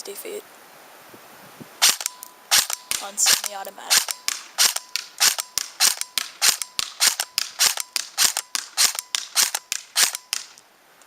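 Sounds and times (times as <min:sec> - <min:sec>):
airsoft rifle shots: 0:01.8 - 0:10.6.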